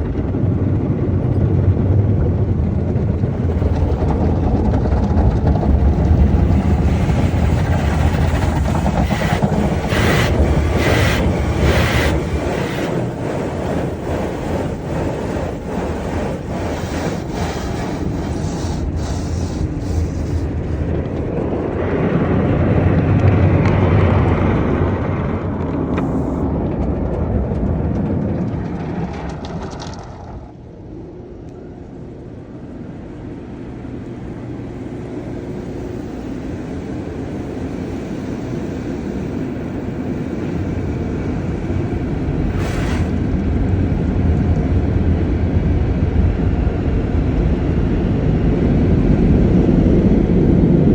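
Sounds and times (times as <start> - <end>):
car wash machinery: 0.0 - 50.9
spraying water: 5.3 - 21.5, 35.0 - 43.7.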